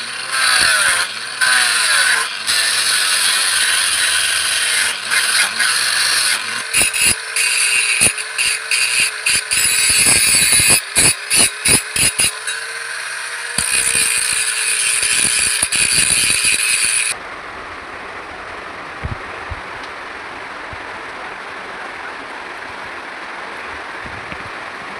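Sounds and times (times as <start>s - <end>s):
power tool whining: 0.0s - 17.2s.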